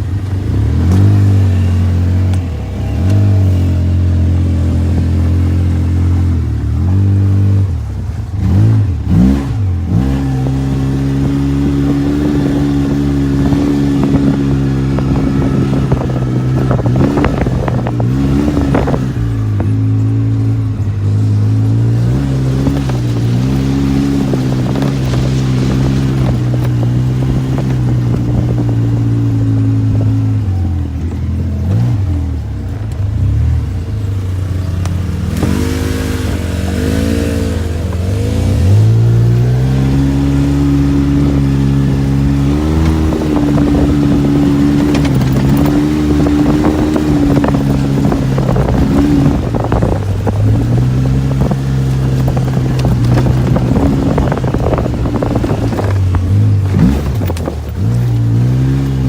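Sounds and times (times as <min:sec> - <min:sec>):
off-road vehicle engine: 0:00.0 - 0:59.0
vehicle knocks and rattles: 0:40.3 - 0:59.0.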